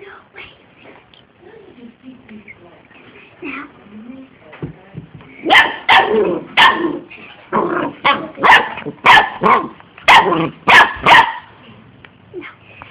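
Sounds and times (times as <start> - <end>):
dog barking: 5.5 - 7.0, 8.1 - 11.6.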